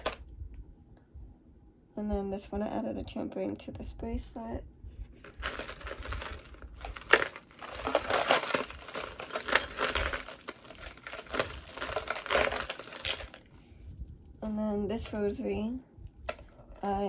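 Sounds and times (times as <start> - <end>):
metal chains and beads clinking: 0.0 - 0.2, 5.2 - 17.0.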